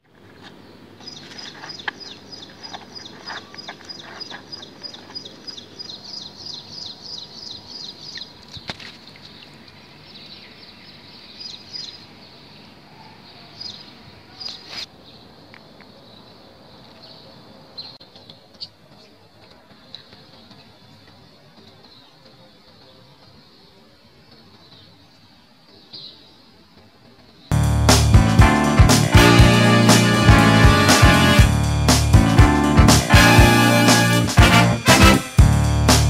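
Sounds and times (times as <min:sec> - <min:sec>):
bird chirping: 0:00.3 - 0:08.4.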